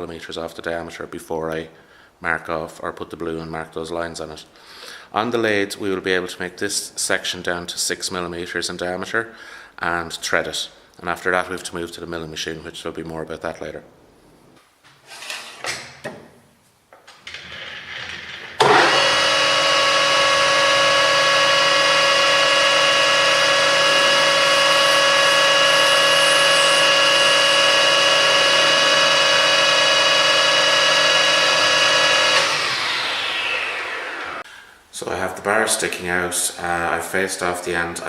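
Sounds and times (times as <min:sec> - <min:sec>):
metal lathe whining: 0:18.6 - 0:34.4.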